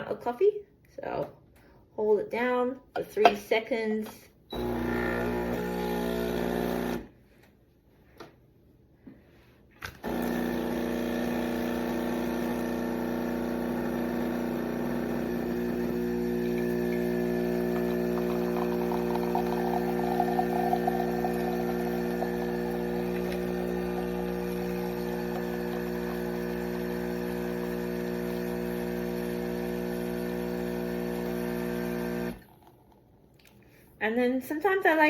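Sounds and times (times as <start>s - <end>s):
espresso machine pump humming: 4.5s - 7.1s, 10.0s - 32.7s.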